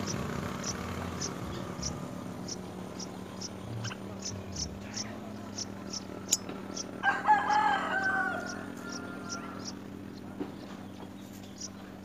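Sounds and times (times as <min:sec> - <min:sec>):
bird's long wavering call: 0:07.0 - 0:09.9.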